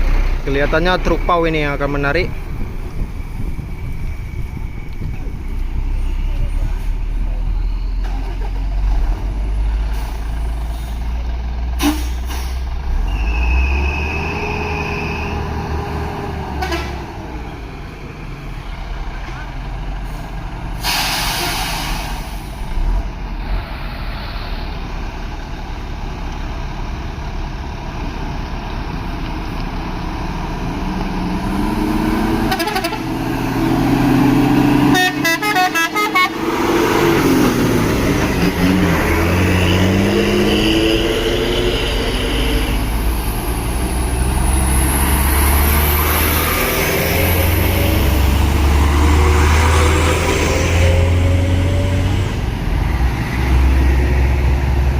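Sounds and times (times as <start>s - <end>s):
diesel truck engines revving: 0.0s - 54.9s
vehicle horn: 16.6s - 17.1s, 32.4s - 33.2s, 34.8s - 36.5s.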